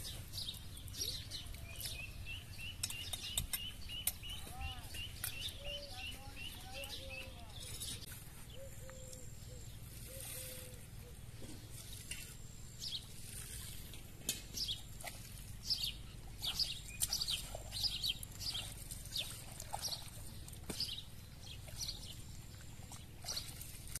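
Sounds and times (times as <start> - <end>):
low steady rumble: 0.0 - 24.0
small birds chirping: 0.0 - 24.0.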